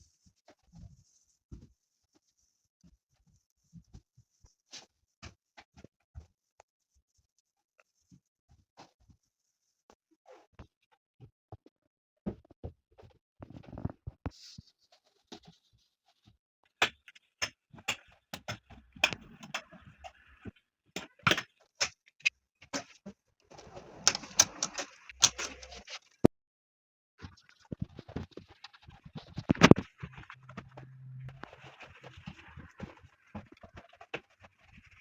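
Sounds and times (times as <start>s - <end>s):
objects clicking and knocking: 22.7s - 26.2s, 27.6s - 34.9s
rubbing and scraping surfaces: 22.8s - 26.3s, 27.3s - 35.0s.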